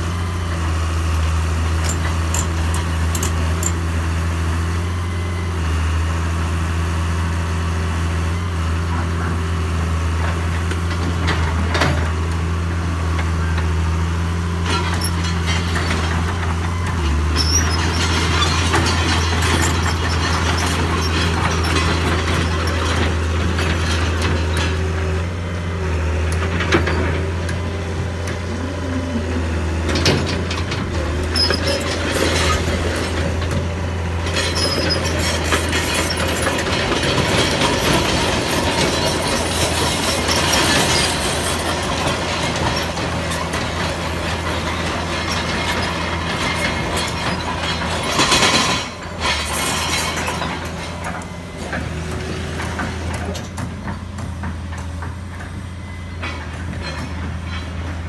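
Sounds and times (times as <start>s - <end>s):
diesel engine droning: 0.0s - 58.0s
metallic clanks and creaks: 1.6s - 4.0s, 14.4s - 55.6s, 56.2s - 58.0s.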